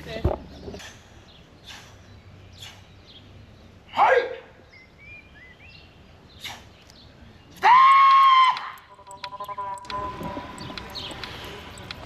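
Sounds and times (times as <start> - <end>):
faint birds chirping: 8.7 - 12.0.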